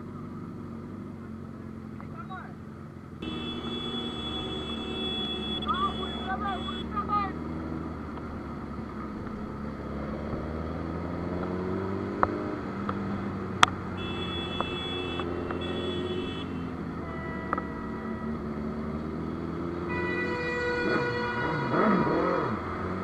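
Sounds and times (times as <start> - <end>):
vehicle engine running: 0.0 - 19.5
vehicle horn honking: 3.2 - 7.1, 13.9 - 18.4, 19.8 - 22.4.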